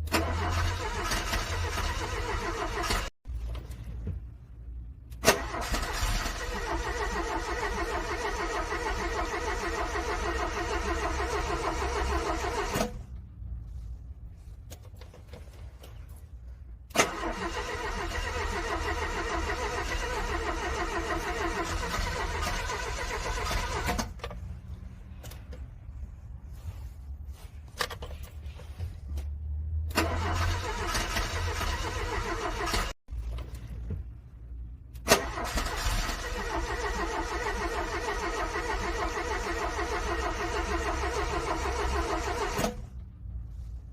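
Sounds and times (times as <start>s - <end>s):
starter motor cranking engine: 0.0s - 3.1s, 5.2s - 13.0s, 16.9s - 24.2s, 29.9s - 33.0s, 35.0s - 42.8s.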